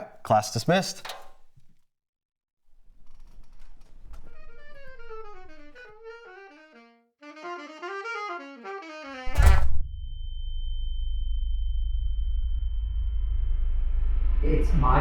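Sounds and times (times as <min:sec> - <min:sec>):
solo saxophone melody: 0:04.6 - 0:09.3
loud noisy thump: 0:09.3 - 0:10.0.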